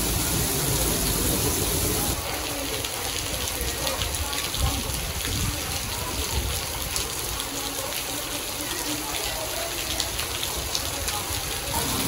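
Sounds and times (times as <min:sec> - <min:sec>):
rain on paved street: 0:00.0 - 0:12.0.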